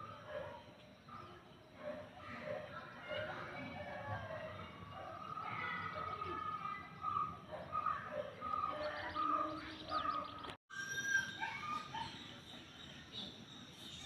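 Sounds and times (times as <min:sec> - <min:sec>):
birds chirping and singing: 0:04.2 - 0:14.0.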